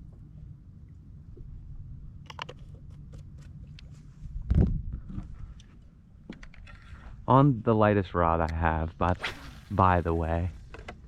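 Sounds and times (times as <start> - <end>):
wind buffeting microphone: 4.2 - 5.6.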